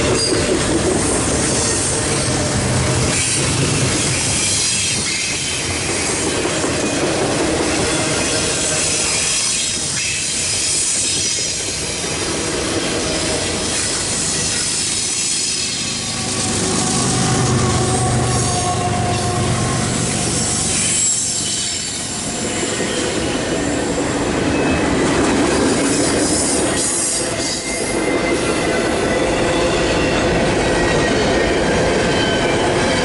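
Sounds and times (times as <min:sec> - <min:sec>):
diesel locomotive engine hum: 0:00.0 - 0:33.0
high wheel squeal: 0:00.1 - 0:07.0, 0:07.6 - 0:25.0, 0:25.8 - 0:33.0
freight cars rumbling over rail: 0:15.6 - 0:21.4.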